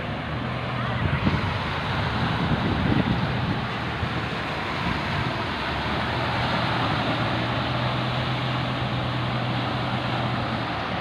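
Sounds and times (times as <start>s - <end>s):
boat engine humming: 0.0s - 11.0s
sea noise: 0.0s - 11.0s
wind rushing: 0.9s - 7.0s.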